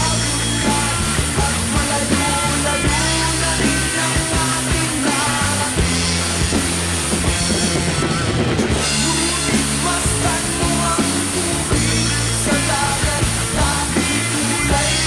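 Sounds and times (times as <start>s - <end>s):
bass: 0.0s - 15.0s
drum kit playing: 0.0s - 15.0s
guitar: 0.0s - 15.0s.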